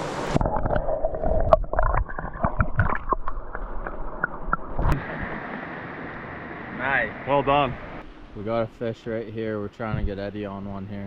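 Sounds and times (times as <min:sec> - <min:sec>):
water splashing and gurgling: 0:00.0 - 0:08.1.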